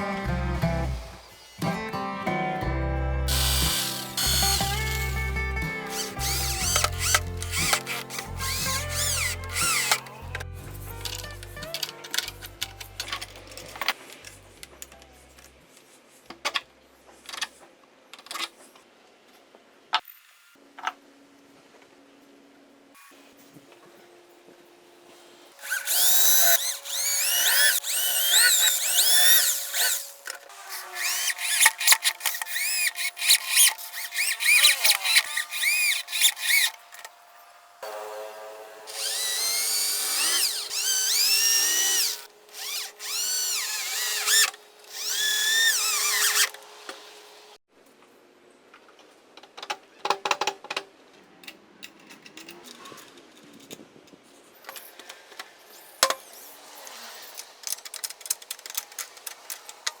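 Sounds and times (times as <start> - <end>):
power drill drilling wood: 3.3 - 10.4, 25.6 - 37.1, 37.8 - 47.4.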